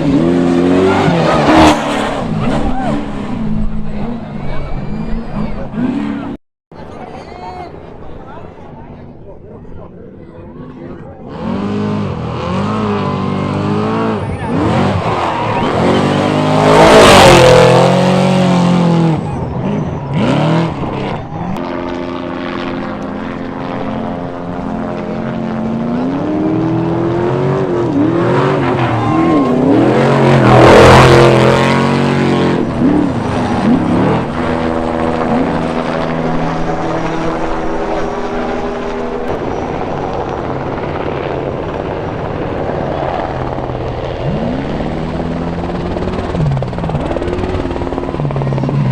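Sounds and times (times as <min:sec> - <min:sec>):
race trucks speeding past: 0:00.0 - 0:08.4, 0:10.7 - 0:48.9
aircraft drone overhead: 0:00.0 - 0:48.9.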